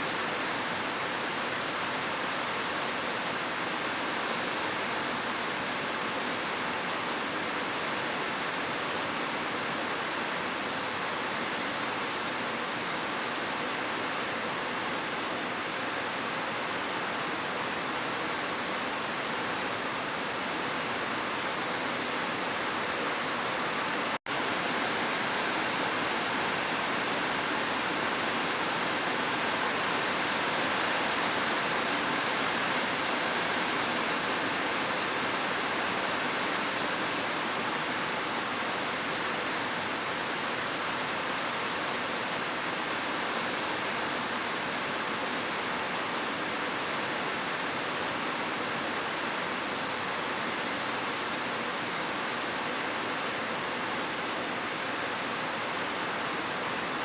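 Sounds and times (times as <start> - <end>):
heavy rain: 16.0 - 57.0.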